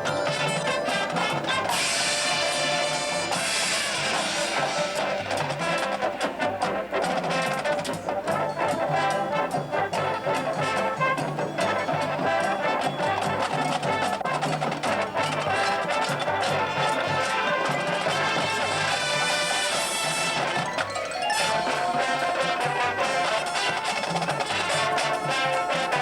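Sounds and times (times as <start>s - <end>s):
brass sustained chords: 0.0s - 13.4s
rapid drum strokes: 0.0s - 26.0s.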